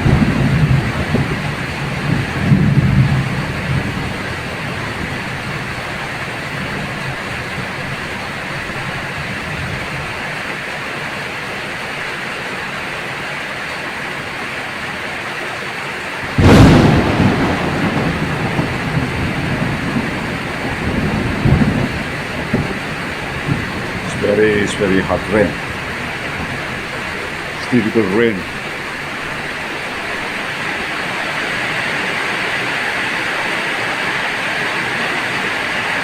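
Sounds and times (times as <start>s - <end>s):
loud thunderclap rumbling: 0.0s - 10.2s, 16.2s - 32.1s
heavy rain hissing: 0.0s - 11.8s, 16.2s - 36.0s.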